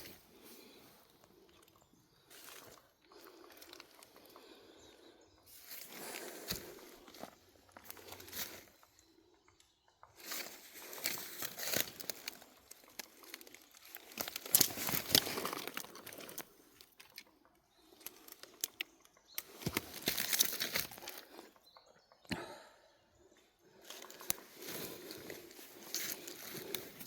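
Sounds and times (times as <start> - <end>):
sharp snaps and crackles: 10.1 - 21.6, 23.9 - 27.0
dry leaves crunching and rustling: 10.2 - 16.4, 19.4 - 21.3, 24.0 - 27.0.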